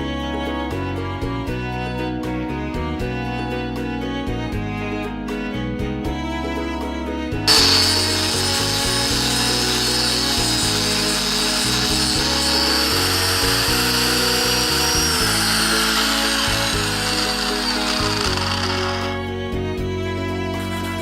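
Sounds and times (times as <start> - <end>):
background music: 0.0 - 21.0
buffing wheel whine: 7.5 - 19.2.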